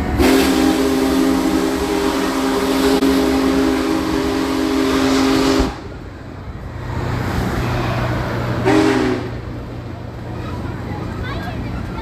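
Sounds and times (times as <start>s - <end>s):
train rumbling: 0.0s - 12.0s
steam whistle blowing: 0.1s - 5.9s, 8.6s - 9.3s.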